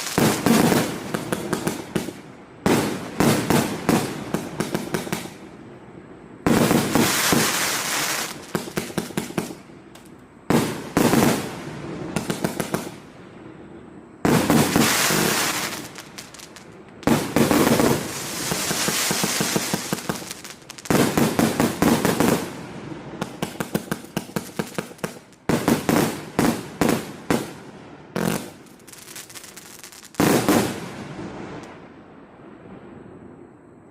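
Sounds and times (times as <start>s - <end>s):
hissing crackle: 0.0s - 2.3s, 6.6s - 10.3s, 14.3s - 26.2s, 28.2s - 30.8s
fireworks volleys of sharp shots: 0.0s - 5.7s, 6.4s - 13.6s, 14.2s - 31.9s.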